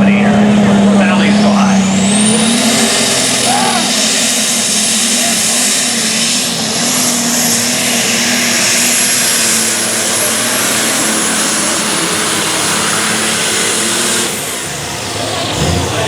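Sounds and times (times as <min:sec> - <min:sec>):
tractor engine roaring: 0:00.0 - 0:16.0
turbo scream: 0:01.8 - 0:06.0.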